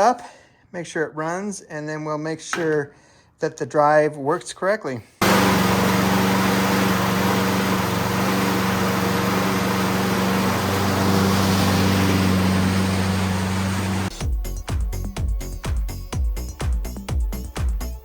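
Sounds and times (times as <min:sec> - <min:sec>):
lawn mower engine running: 0:05.2 - 0:14.2.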